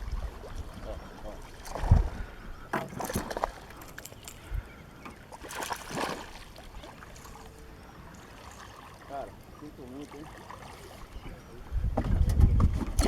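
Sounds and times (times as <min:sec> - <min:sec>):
splashing and rustling: 0:00.0 - 0:04.5, 0:05.3 - 0:07.6
low water noise: 0:00.0 - 0:13.0.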